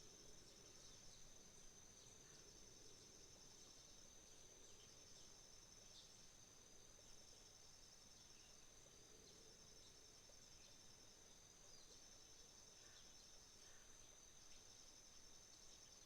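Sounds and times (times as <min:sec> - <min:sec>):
insects trilling: 0:00.0 - 0:16.0
faint bird chirps: 0:08.1 - 0:16.0.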